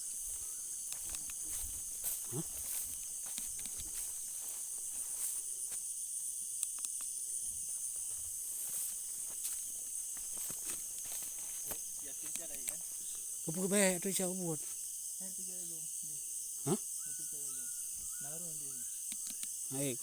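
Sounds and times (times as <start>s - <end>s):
crickets trilling: 0.0s - 20.0s
soft thuds through vegetation: 0.1s - 5.4s, 8.0s - 13.2s
faint clicks: 0.8s - 1.6s, 3.2s - 3.9s, 6.6s - 7.2s, 12.1s - 12.9s, 19.1s - 19.6s.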